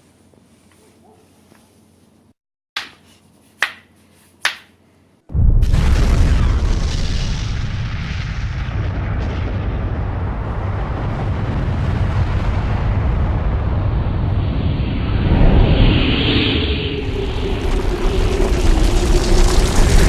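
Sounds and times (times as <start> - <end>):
fire roaring: 5.3 - 20.0.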